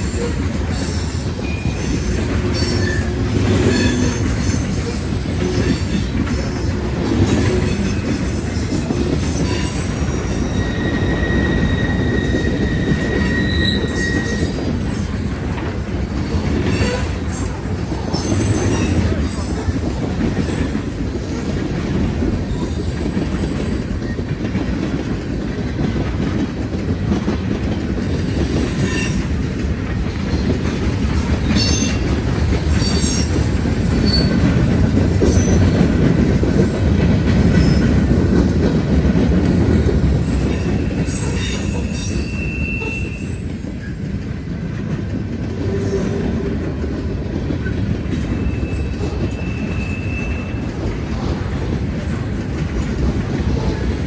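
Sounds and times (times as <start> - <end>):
high wheel squeals: 0.0 - 21.0, 30.7 - 36.7, 40.1 - 44.1, 48.2 - 50.9
freight train rumbling over rails: 0.0 - 54.0.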